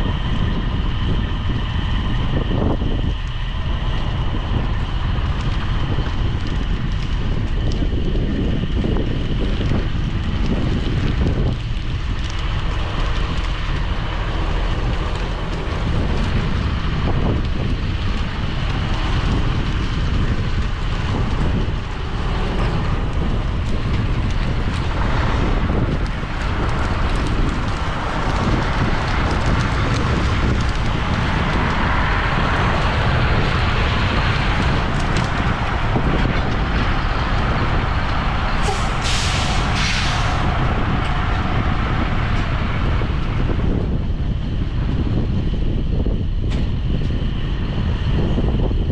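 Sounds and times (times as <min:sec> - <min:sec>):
farm machinery engine rumble: 0:00.0 - 0:48.9
wind buffeting microphone: 0:00.0 - 0:48.9.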